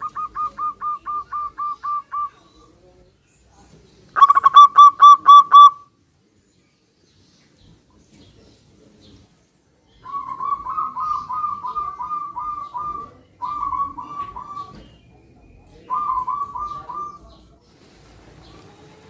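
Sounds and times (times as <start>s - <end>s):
doves cooing: 0.0s - 2.7s, 4.2s - 5.8s, 10.0s - 17.6s.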